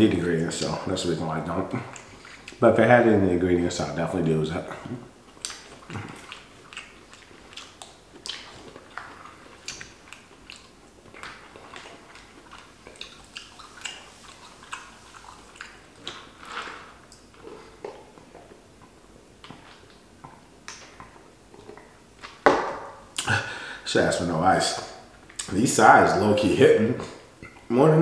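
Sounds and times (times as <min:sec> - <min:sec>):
wet chewing clicks and smacks: 0:01.7 - 0:02.6, 0:05.2 - 0:22.4, 0:25.2 - 0:25.6.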